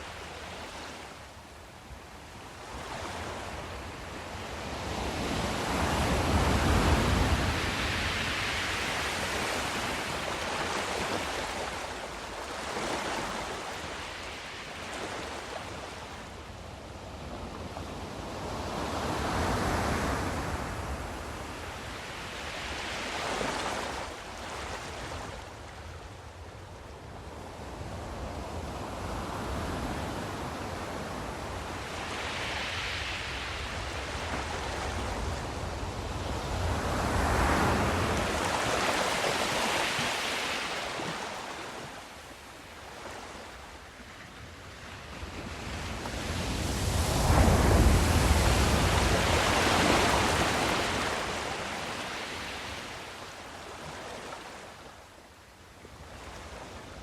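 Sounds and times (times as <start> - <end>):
sea waves washing in: 30.4 - 43.9, 44.6 - 54.5.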